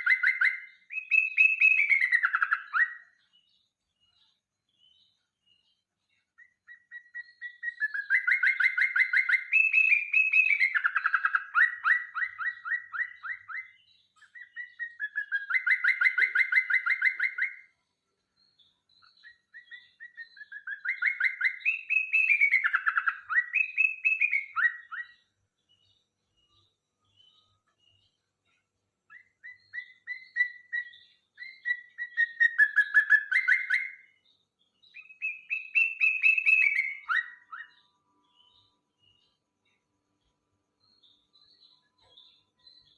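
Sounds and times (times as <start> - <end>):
bird singing trilled notes: 0.0 - 42.9.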